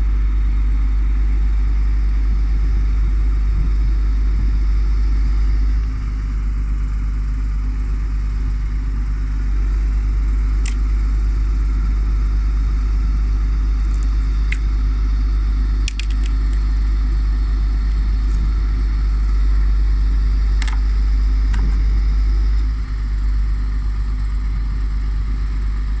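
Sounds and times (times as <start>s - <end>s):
loader crane working: 0.0s - 26.0s
truck diesel engine rumbling: 1.1s - 26.0s
sharp clicks: 15.8s - 16.6s.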